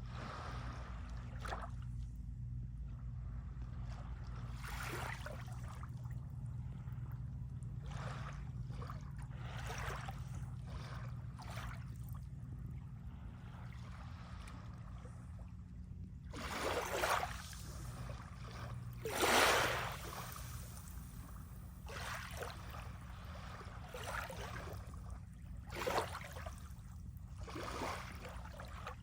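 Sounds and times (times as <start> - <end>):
small waves washing on shore: 16.3 - 24.9, 25.7 - 26.7, 27.4 - 29.0.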